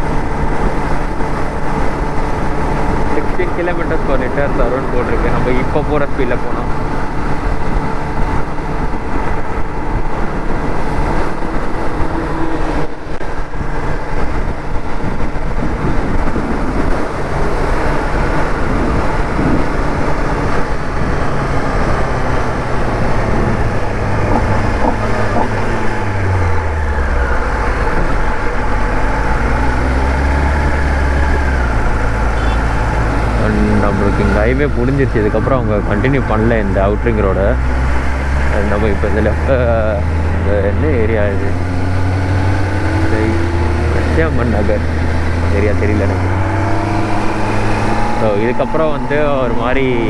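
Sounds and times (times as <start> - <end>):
motorcycle engine cruising: 0.0 - 50.0
road and wind noise: 0.0 - 50.0.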